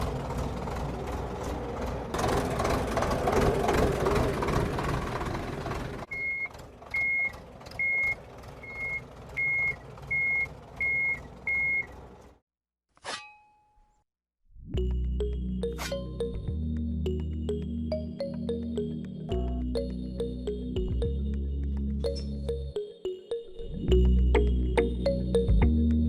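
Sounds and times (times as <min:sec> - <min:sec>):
heavy vehicle engine running: 0:00.0 - 0:12.4
reversing alarm beeping: 0:06.1 - 0:11.9.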